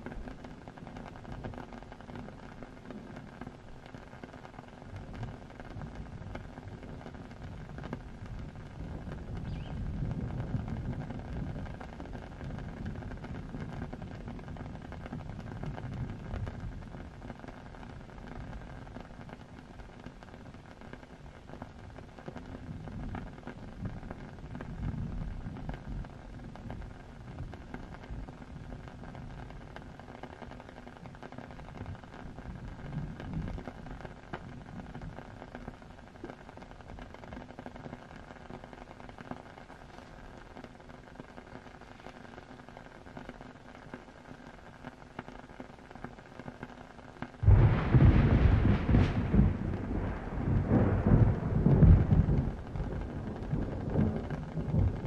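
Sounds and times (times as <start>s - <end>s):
rain hissing: 0.0s - 55.0s
low rumble: 47.4s - 55.0s.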